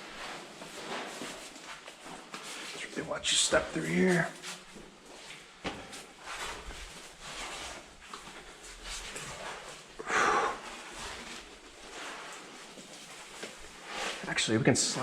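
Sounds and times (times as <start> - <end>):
person breathing hard: 10.0 - 11.4.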